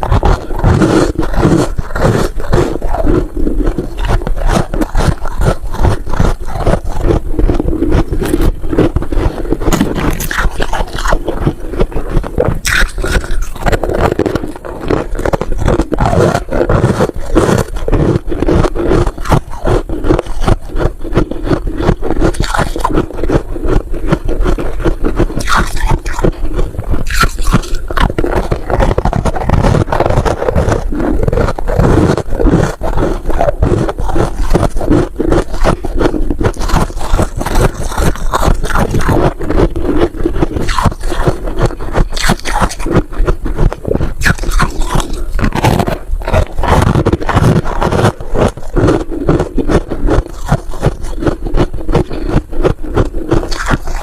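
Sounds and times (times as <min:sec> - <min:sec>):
frost crunching being chewed: 0:00.0 - 0:54.0.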